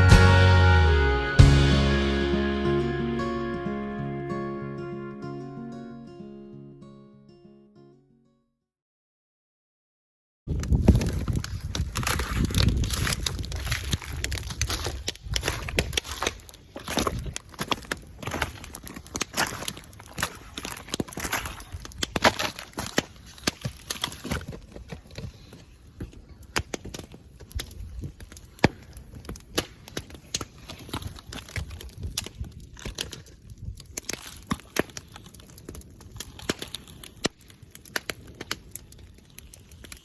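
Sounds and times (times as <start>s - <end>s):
bonfire crackling and popping: 10.5s - 40.0s.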